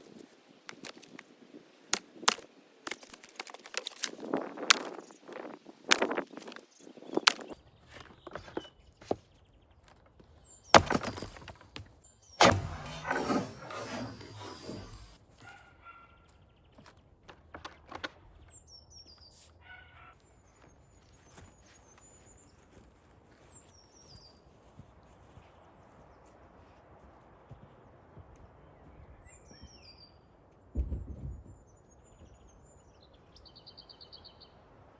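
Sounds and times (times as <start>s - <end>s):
wood cracking and clattering: 0.7s - 1.2s, 1.9s - 9.2s, 10.8s - 15.2s, 16.8s - 18.4s
axe striking wood: 2.0s - 5.0s, 5.9s - 6.6s, 7.2s - 7.6s, 10.8s - 15.2s.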